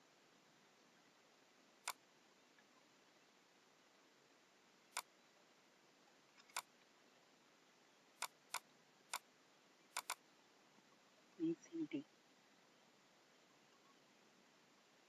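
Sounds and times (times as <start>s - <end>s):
computer mouse buttons clicking: 6.4s - 6.7s, 10.0s - 10.2s.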